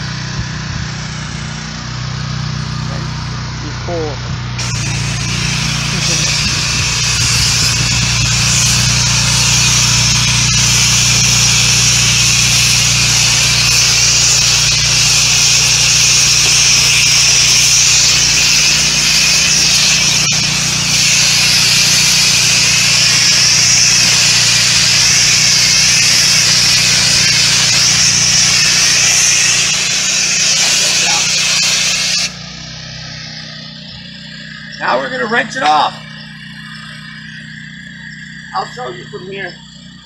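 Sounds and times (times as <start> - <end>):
pump humming: 0.0 - 40.0
spray wand hissing: 4.6 - 32.4.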